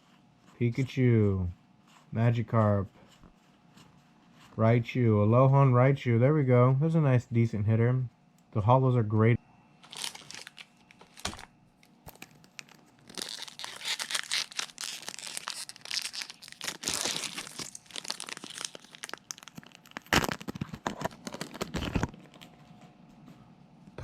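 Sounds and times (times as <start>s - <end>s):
foil wrapper tearing and crinkling: 9.8s - 22.6s.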